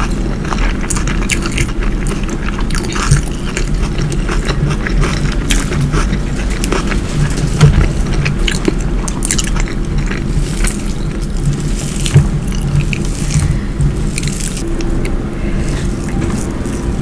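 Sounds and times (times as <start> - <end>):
person chewing: 0.0 - 17.0
low hum: 3.6 - 17.0.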